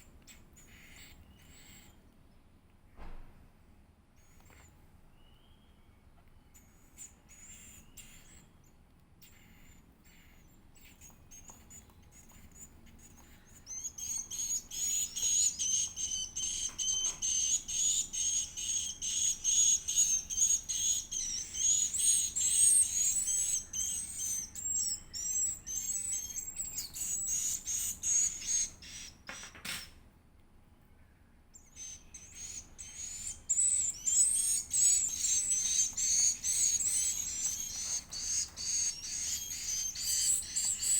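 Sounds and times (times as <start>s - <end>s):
bird chick chirping: 0.2s - 2.0s, 9.2s - 29.4s, 31.6s - 40.9s.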